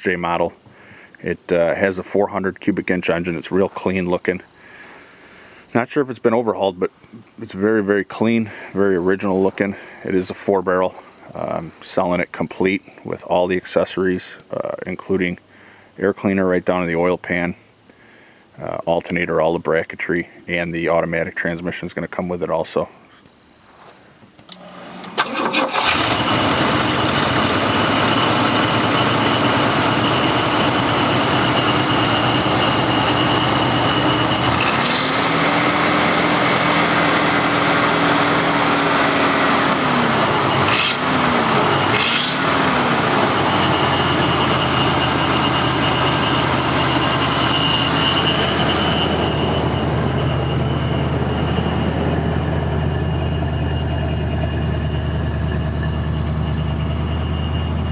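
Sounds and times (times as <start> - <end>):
car engine running and revving: 25.6 - 57.9.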